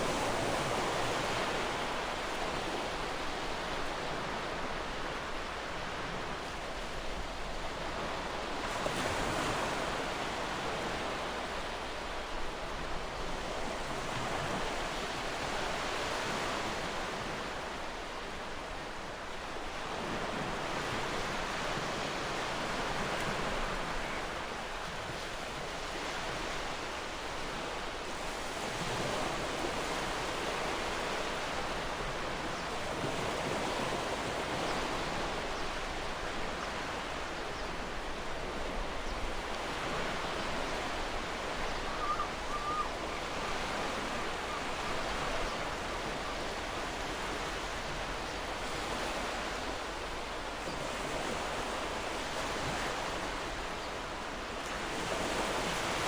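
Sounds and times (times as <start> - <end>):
faint bird call: 41.5 - 46.5.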